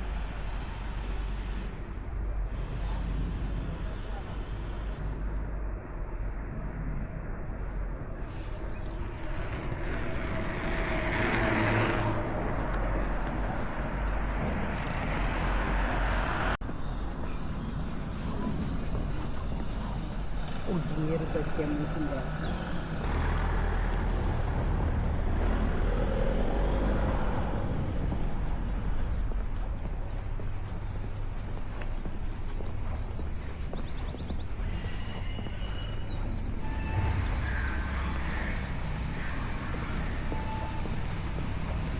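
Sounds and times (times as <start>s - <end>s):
urban traffic noise: 0.0s - 41.9s
motor vehicle passing: 8.2s - 16.6s, 20.7s - 31.6s
vehicle driving past: 8.2s - 16.6s.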